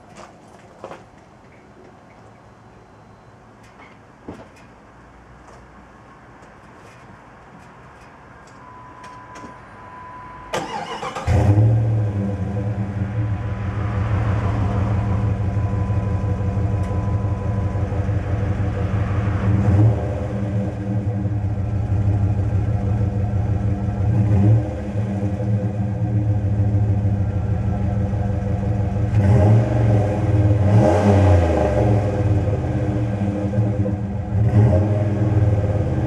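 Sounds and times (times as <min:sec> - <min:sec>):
faint steady tone: 0:02.3 - 0:04.0, 0:08.5 - 0:10.6, 0:12.8 - 0:19.6
car engine idling: 0:10.6 - 0:30.9, 0:32.0 - 0:36.0.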